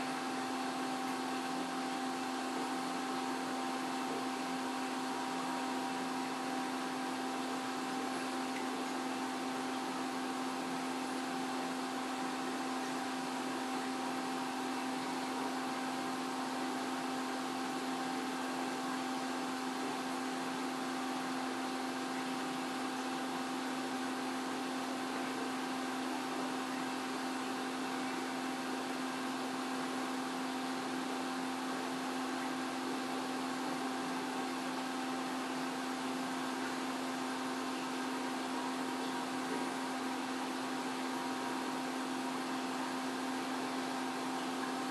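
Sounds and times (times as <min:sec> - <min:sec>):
aquarium pump humming: 0:00.0 - 0:44.9.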